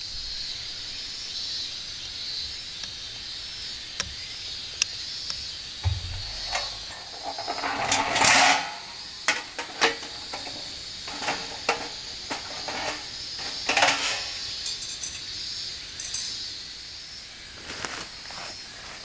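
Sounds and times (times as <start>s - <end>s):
scraping rustle: 5.8s - 15.3s
metal gear clinking: 5.8s - 16.4s.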